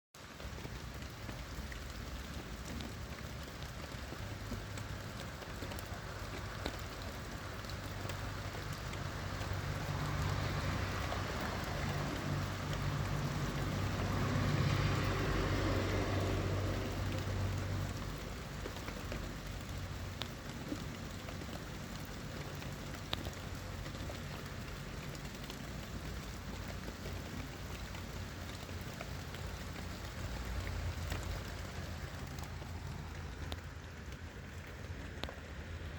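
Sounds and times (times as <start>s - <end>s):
steady rain falling: 0.2s - 35.9s
vehicle passing on wet road: 0.2s - 35.9s
drops ticking on surfaces: 0.3s - 35.7s.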